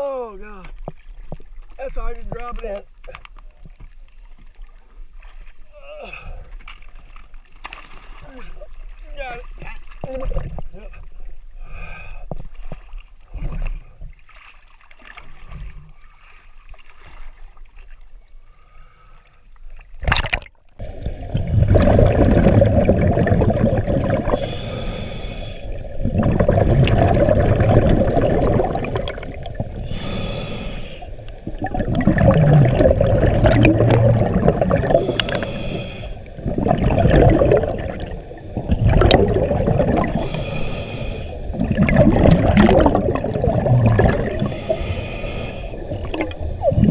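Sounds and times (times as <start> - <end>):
diver breathing through regulator: 23.8 - 46.9.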